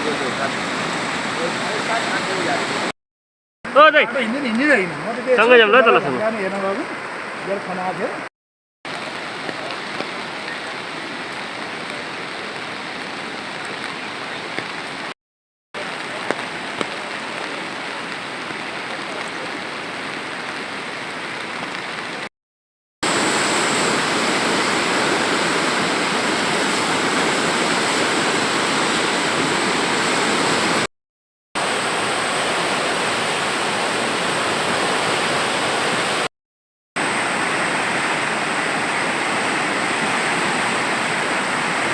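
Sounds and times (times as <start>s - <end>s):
river rushing: 0.0s - 2.9s, 3.7s - 8.3s, 23.0s - 30.9s, 31.6s - 36.3s, 37.0s - 41.9s.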